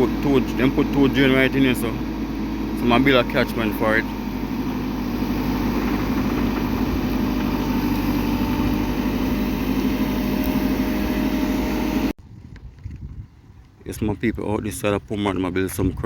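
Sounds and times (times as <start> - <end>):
engine running steadily: 0.0 - 12.2.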